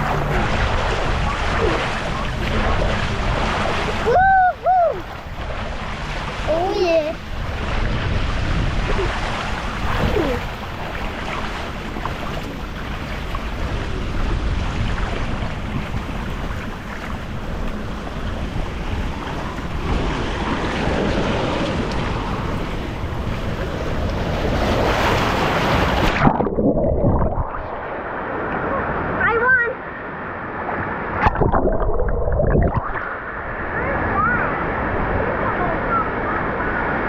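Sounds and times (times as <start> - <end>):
wind buffeting microphone: 0.0 - 29.2.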